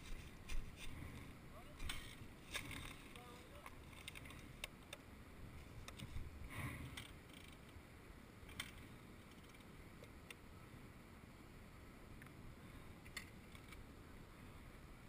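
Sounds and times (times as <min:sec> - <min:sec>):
faint low outdoor rumble: 0:00.0 - 0:15.0.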